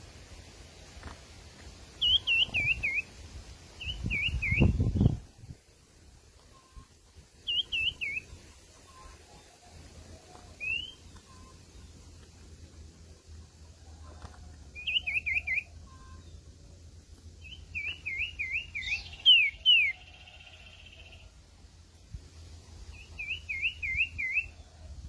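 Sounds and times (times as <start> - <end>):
bird whistled calls: 2.0 - 3.1, 3.8 - 5.1, 7.4 - 9.2, 10.6 - 11.5, 14.8 - 16.3, 17.4 - 20.6, 22.9 - 24.6.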